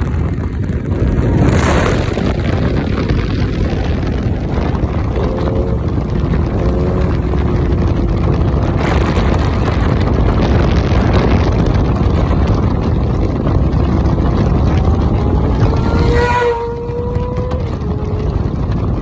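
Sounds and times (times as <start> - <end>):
motorcycle engine: 0.0 - 19.0
wind rush on microphone: 0.0 - 19.0.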